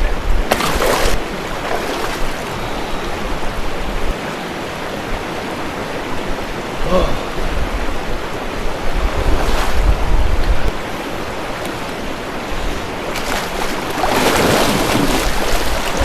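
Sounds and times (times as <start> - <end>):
rushing river water: 0.2 - 16.0
person splashing in water: 0.5 - 3.2, 13.1 - 16.0
wind buffeting microphone: 7.4 - 11.1.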